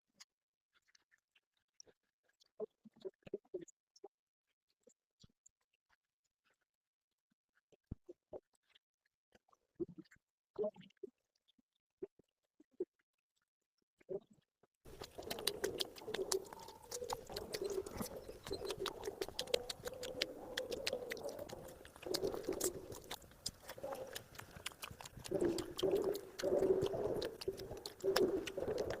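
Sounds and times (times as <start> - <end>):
close-up chewing: 14.9 - 29.0.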